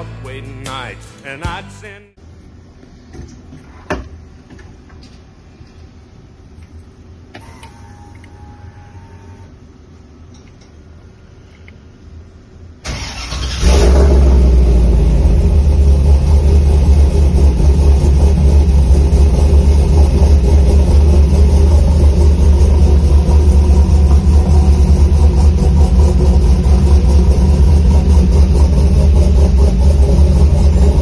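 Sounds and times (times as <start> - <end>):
car engine cranking and running: 12.8 - 31.0.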